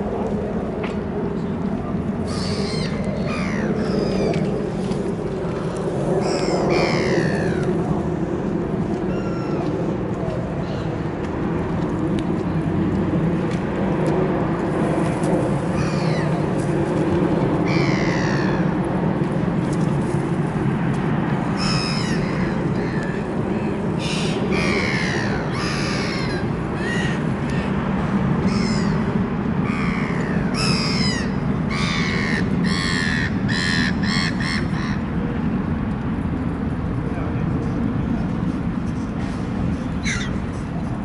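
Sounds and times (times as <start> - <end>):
steady low rumble: 0.0 - 41.0
birds making harsh calls: 2.3 - 4.4, 17.6 - 18.6, 21.6 - 23.1, 40.0 - 40.4.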